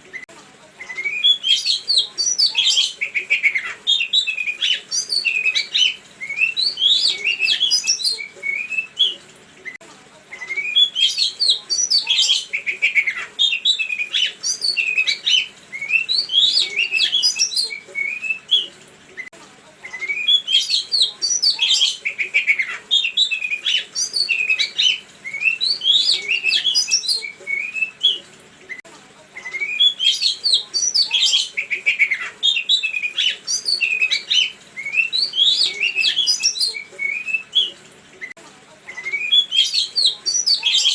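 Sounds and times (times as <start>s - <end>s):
songbird singing: 0.8s - 9.2s, 10.4s - 18.7s, 20.0s - 28.2s, 29.5s - 38.4s, 39.0s - 40.9s.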